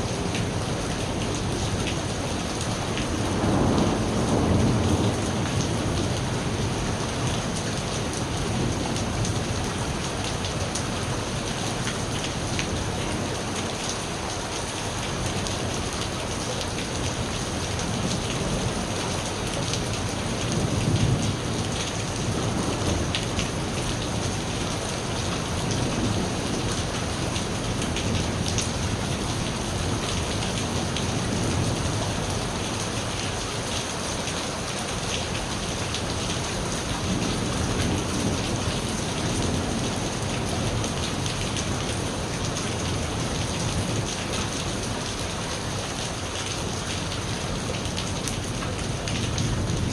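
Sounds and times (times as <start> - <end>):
rain patter: 0.0 - 49.9
low rumble of thunder: 0.2 - 11.1, 16.7 - 33.0, 36.0 - 44.4, 48.4 - 49.9.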